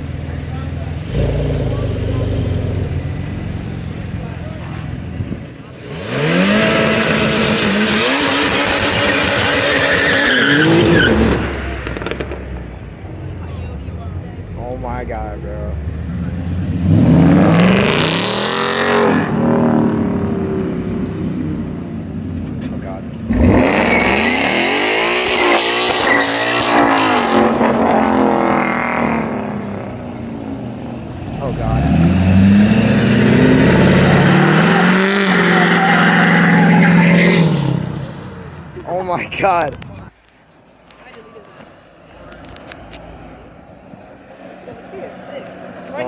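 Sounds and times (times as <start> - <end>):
engine revving: 0.0 - 13.1, 14.4 - 39.8
tire noise hiss: 1.2 - 24.1.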